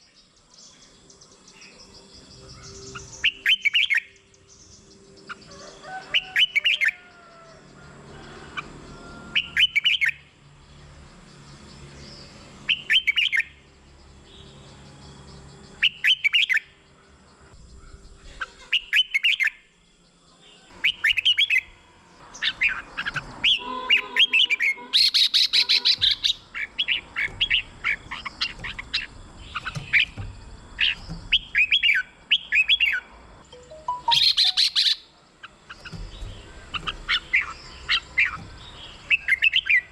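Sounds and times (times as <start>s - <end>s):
bird chirping quickly: 22.3s - 39.9s
bird singing whistled phrases: 33.6s - 35.0s.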